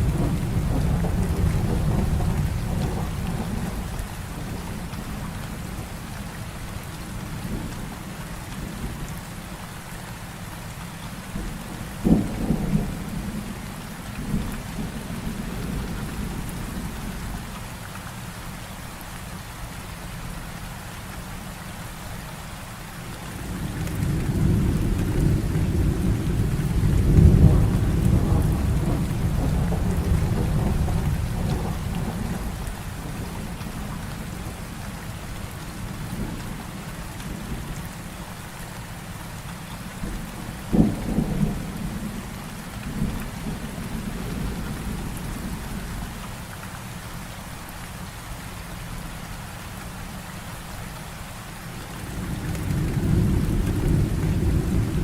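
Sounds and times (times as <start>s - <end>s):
thunder crack: 0.0s - 3.9s, 23.5s - 33.6s
rolling thunder rumble: 0.0s - 6.3s, 11.3s - 17.5s, 23.2s - 37.9s, 39.9s - 46.2s, 51.9s - 55.0s
heavy rain falling: 0.0s - 55.0s.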